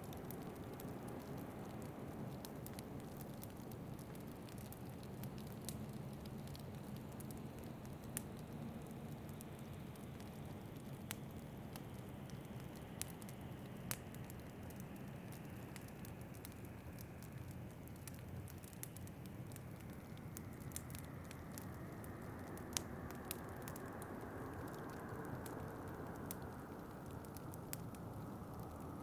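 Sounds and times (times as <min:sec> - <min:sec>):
fireplace crackling: 0:10.1 - 0:29.0.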